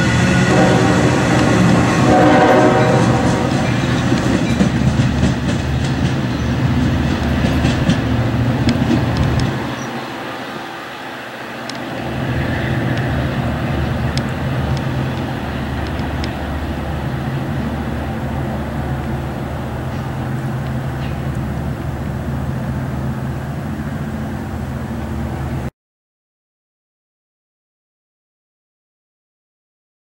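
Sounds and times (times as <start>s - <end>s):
train horn: 0.0s - 5.0s, 7.5s - 22.7s
train wheels rumbling on rails: 0.0s - 25.7s.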